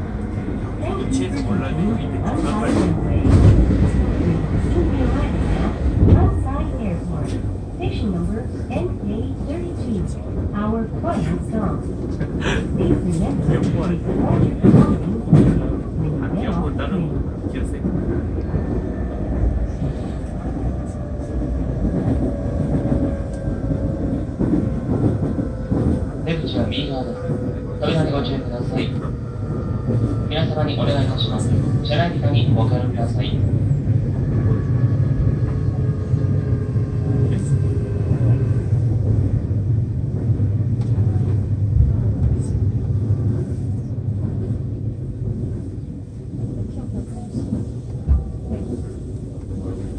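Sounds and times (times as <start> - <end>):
train wheels rumbling on track: 0.0 - 49.9.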